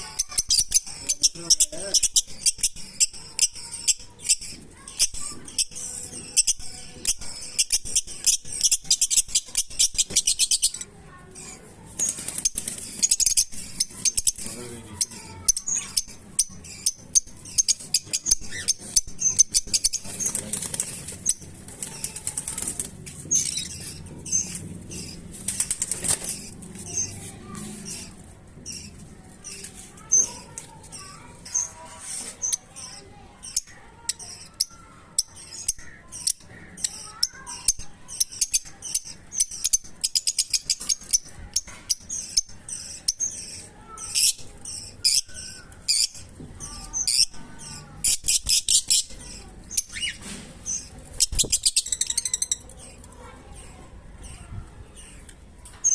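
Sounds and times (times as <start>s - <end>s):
lovebirds chirping: 0.0s - 55.9s.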